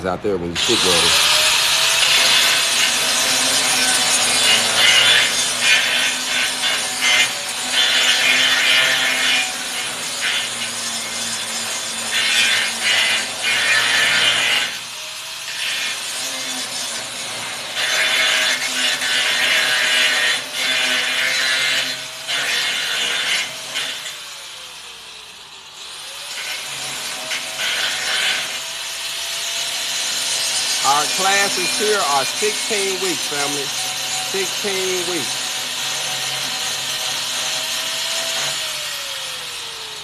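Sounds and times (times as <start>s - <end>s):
angle grinder grinding steel: 0.6s - 40.0s.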